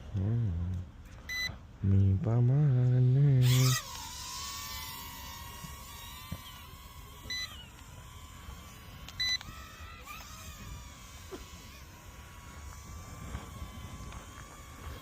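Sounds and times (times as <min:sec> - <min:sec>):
short electronic beeps: 0:01.3 - 0:01.6, 0:07.3 - 0:07.5, 0:09.2 - 0:09.4
drone propellers whining: 0:03.0 - 0:15.0
wind rumbling on microphone: 0:07.2 - 0:15.0.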